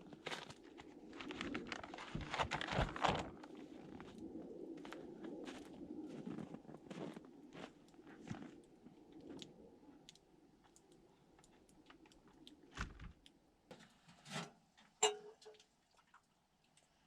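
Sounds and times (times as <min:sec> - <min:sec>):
small clicks and crunches: 0:00.0 - 0:04.1.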